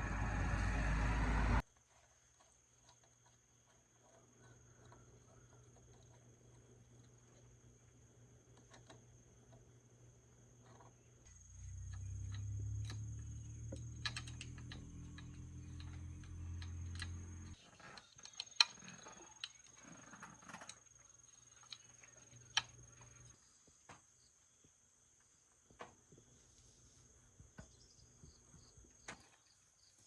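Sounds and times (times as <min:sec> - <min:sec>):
low machine hum: 0:00.0 - 0:01.6.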